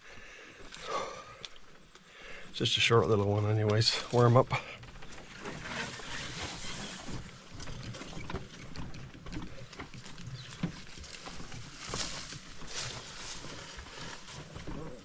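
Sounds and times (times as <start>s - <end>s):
footsteps on a trail: 0.0s - 15.0s
brush rustling: 4.9s - 15.0s.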